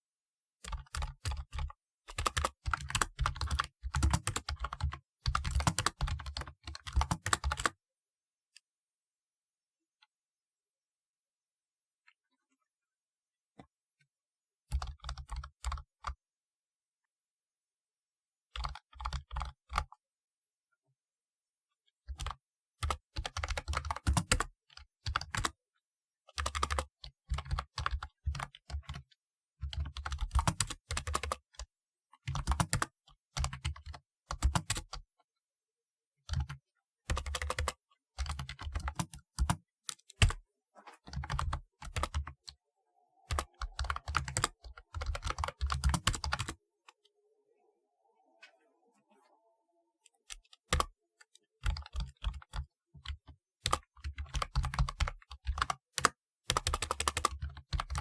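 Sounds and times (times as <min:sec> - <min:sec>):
keyboard keystroke clicks: 0:43.3 - 0:46.6.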